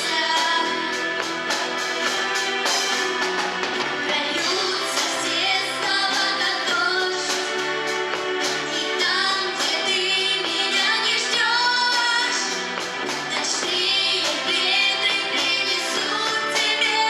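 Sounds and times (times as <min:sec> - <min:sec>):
woman singing: 0:00.0 - 0:01.1, 0:04.0 - 0:07.6, 0:08.7 - 0:12.7, 0:13.3 - 0:17.0
instrumental backing: 0:00.0 - 0:17.0.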